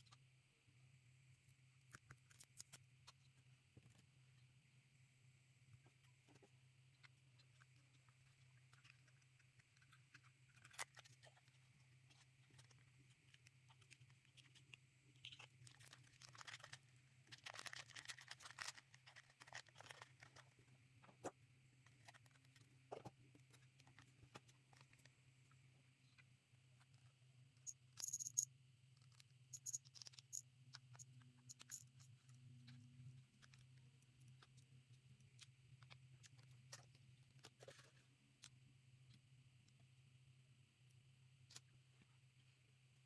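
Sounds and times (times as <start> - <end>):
steady low hum: 0.0 - 43.0
plastic pieces clicking and crinkling: 7.6 - 20.6, 28.0 - 32.8.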